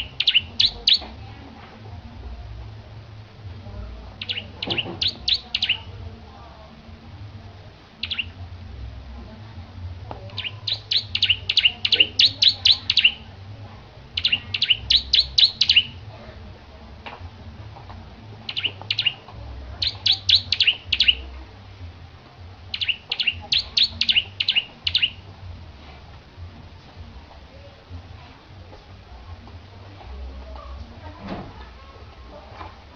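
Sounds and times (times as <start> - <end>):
bird singing high chirps: 0.0 - 1.1, 4.2 - 5.9, 8.0 - 8.4, 10.4 - 13.2, 14.2 - 16.0, 18.5 - 21.3, 22.7 - 25.2.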